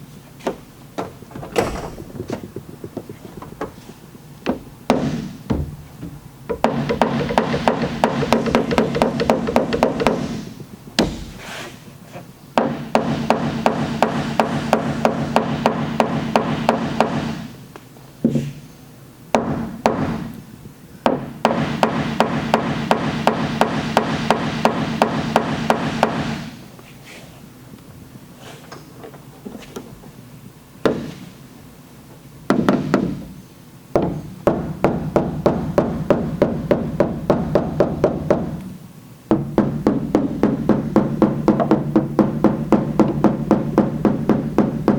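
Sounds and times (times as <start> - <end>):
hammer tapping on sheet metal: 4.4 - 10.4, 12.6 - 17.4, 21.0 - 26.4, 34.0 - 38.7, 39.3 - 44.9.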